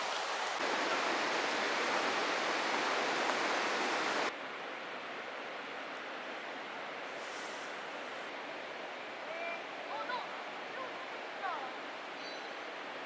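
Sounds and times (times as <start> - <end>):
stream rushing over rocks: 0.0 - 4.3.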